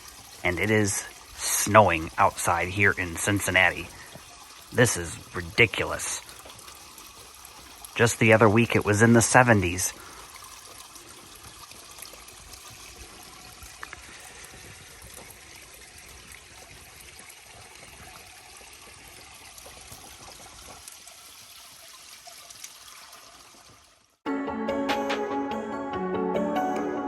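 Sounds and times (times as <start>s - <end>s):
wet snowfall hiss: 0.0s - 6.2s.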